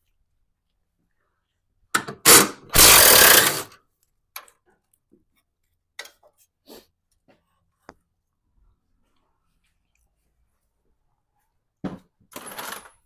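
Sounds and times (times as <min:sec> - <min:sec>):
power tool spinning out bolt: 0:02.2 - 0:03.8.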